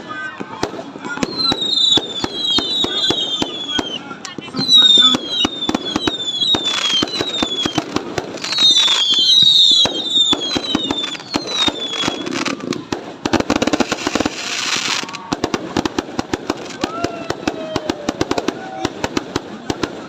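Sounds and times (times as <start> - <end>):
fireworks cracking and popping: 0.0 - 20.0
hissing firework burst: 0.0 - 20.0
falling whistles: 1.3 - 4.0, 4.6 - 12.5.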